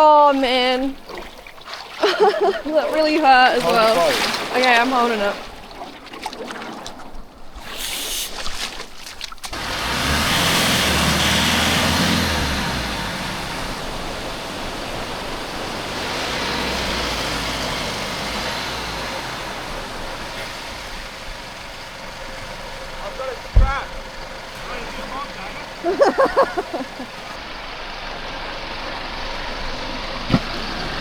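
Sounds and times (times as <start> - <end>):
rushing surf: 2.4 - 5.6, 9.5 - 31.0
vehicle engine running: 9.5 - 31.0.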